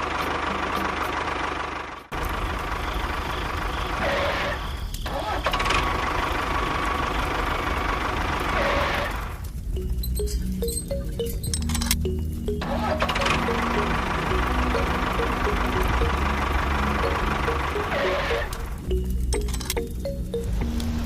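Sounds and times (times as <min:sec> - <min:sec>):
music: 0:09.8 - 0:21.0.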